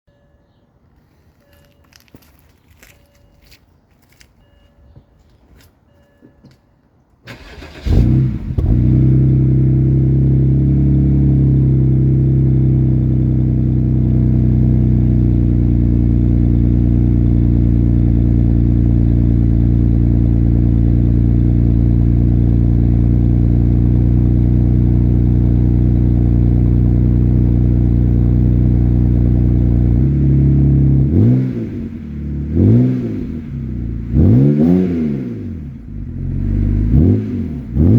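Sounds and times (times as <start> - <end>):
car engine starting and idling: 7.2 - 37.9
engine revving: 7.3 - 16.4, 29.7 - 37.9.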